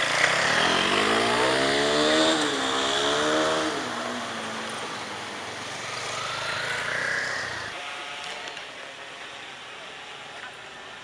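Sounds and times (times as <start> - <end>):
vehicle engine revving: 0.0 - 7.8.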